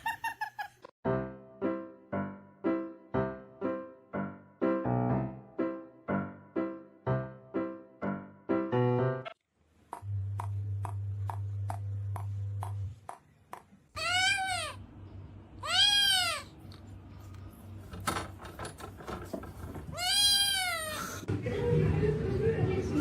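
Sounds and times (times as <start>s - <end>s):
low hum with regular ticks: 9.9s - 17.6s
cat meowing: 14.0s - 14.8s, 15.6s - 16.5s, 19.9s - 21.2s.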